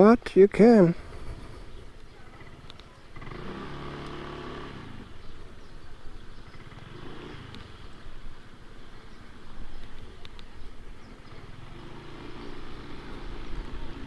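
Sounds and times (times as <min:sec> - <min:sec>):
scooter engine: 0:00.5 - 0:14.0
wind rumble on microphone: 0:01.0 - 0:02.2.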